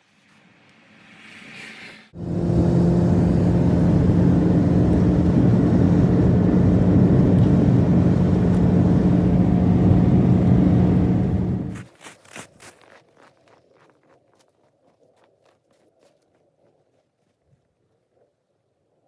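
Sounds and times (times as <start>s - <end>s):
engine rumbling steadily: 2.2s - 11.8s.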